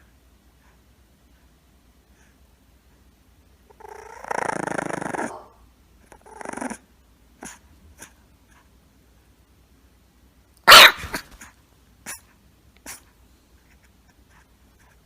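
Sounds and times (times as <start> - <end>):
animal growling call: 3.7 - 6.8.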